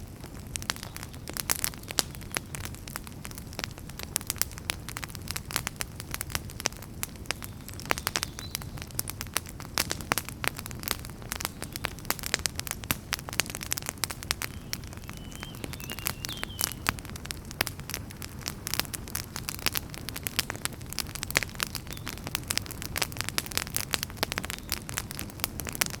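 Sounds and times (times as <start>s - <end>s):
fireplace fire crackling: 0.0s - 26.0s
faint whistle: 14.5s - 16.9s.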